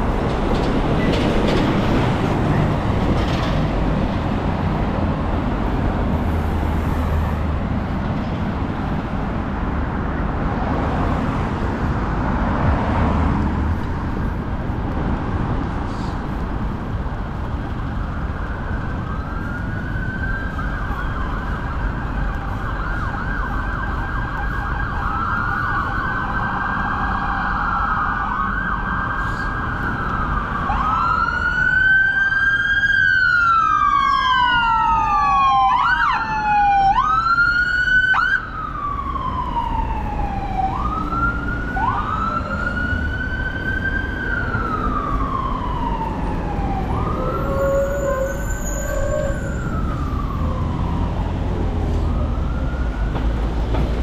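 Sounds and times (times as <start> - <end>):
city traffic rumble: 0.0 - 54.0
emergency vehicle siren wailing: 16.9 - 54.0.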